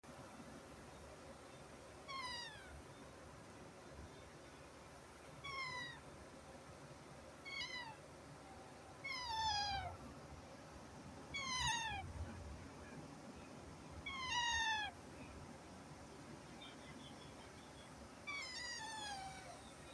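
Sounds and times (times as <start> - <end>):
baby parrots calling: 11.4 - 12.0, 14.1 - 14.9.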